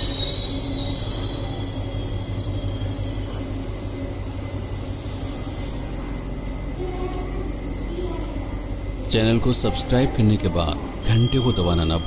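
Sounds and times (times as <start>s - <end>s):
high wheel squeal: 0.0s - 3.6s
train humming and rumbling: 0.0s - 12.0s.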